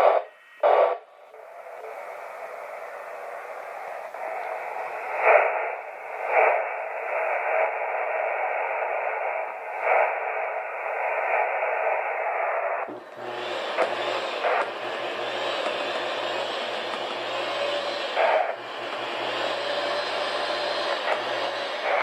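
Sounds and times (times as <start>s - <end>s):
radio static hiss: 0.0s - 22.0s
steady rushing noise: 0.0s - 22.0s.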